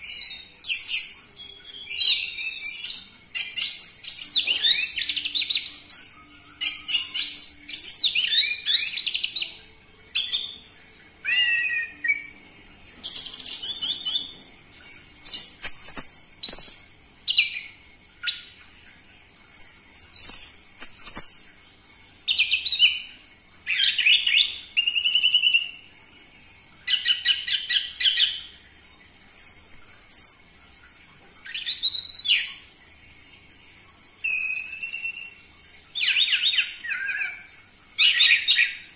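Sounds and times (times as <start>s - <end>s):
thrush singing trills and whistles: 0.0s - 9.6s, 11.2s - 12.4s, 19.4s - 21.5s, 31.4s - 38.9s.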